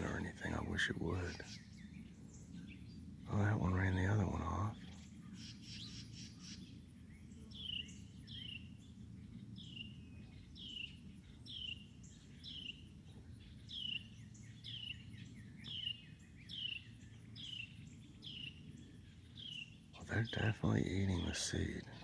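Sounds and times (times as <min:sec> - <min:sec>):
low background rumble: 0:00.0 - 0:22.0
songbird whistling: 0:13.6 - 0:18.6.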